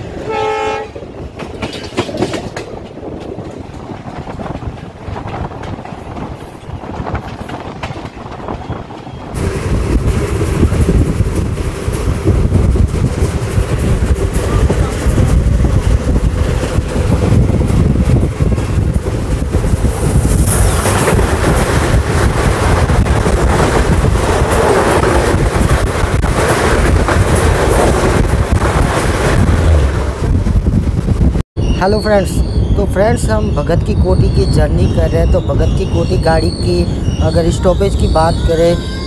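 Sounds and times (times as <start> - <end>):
wind on microphone: 0.0 - 39.0
train wheels clattering: 1.2 - 30.6.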